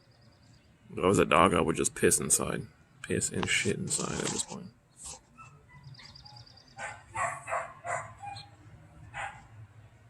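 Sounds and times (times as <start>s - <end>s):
dog barking: 5.4s - 8.5s, 9.1s - 9.5s.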